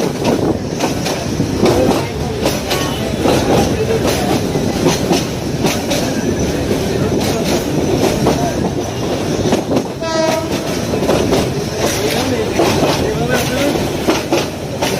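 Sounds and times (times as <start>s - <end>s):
train wheels rumbling on tracks: 0.0s - 14.9s
train horn toot: 10.0s - 10.8s.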